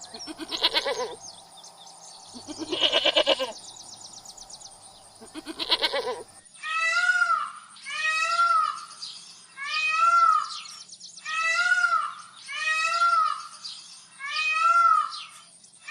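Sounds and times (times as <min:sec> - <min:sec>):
kitten meowing: 0:00.2 - 0:01.2, 0:02.4 - 0:03.6.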